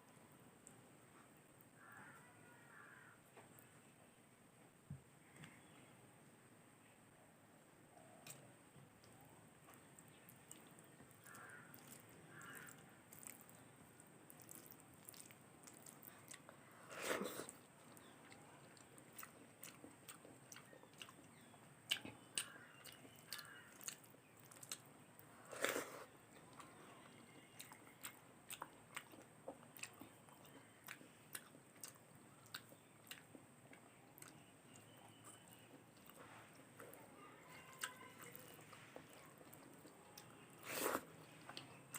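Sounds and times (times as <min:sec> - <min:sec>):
soft chewing: 0:08.0 - 0:41.9
crunchy bites: 0:09.7 - 0:13.6.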